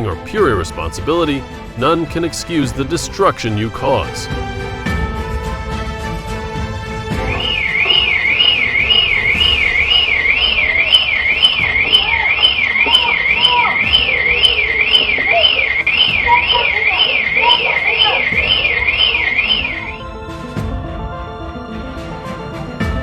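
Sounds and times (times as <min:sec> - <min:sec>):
faint rising and falling sounds: 0:07.2 - 0:16.4
electronic siren sweeping: 0:07.2 - 0:20.2.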